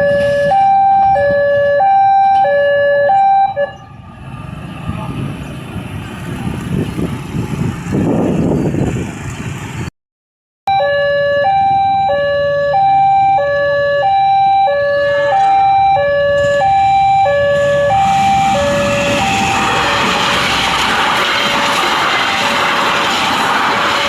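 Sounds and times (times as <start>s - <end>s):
two-tone level crossing alarm: 0.0s - 3.8s, 10.7s - 24.0s
rush of noise: 16.7s - 24.0s.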